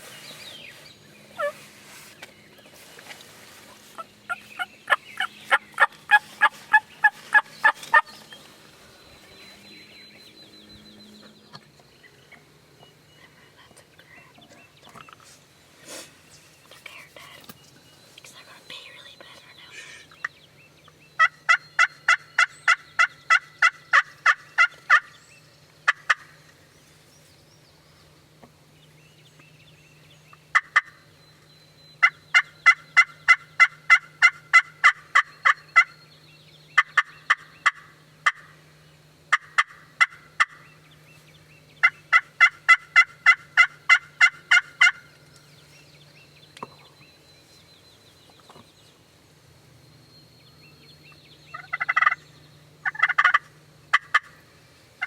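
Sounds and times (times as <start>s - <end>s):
low steady hum: 0.0s - 55.0s
wild turkeys yelping: 1.3s - 1.7s, 3.6s - 8.5s, 21.2s - 25.2s, 25.8s - 26.5s, 30.3s - 31.1s, 32.0s - 36.0s, 36.8s - 38.6s, 39.3s - 40.6s, 41.8s - 45.2s, 51.5s - 52.2s, 52.8s - 54.5s.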